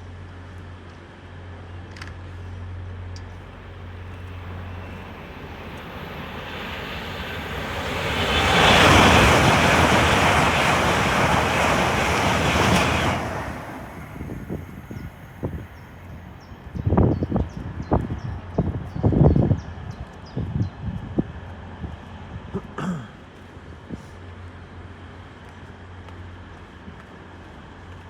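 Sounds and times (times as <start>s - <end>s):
fast train passing: 3.4s - 22.5s.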